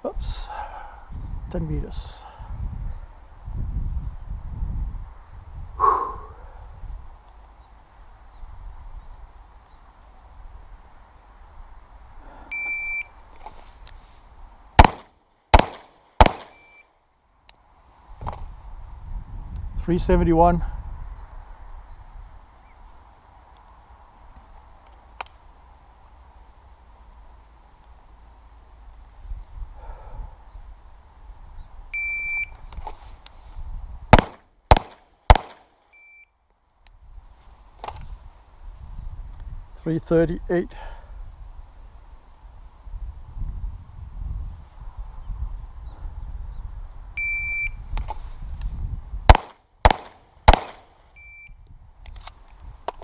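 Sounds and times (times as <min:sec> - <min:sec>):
pistol shots: 0:14.8 - 0:16.7, 0:34.1 - 0:35.7, 0:49.3 - 0:50.9
shot timer beep: 0:47.2 - 0:47.8.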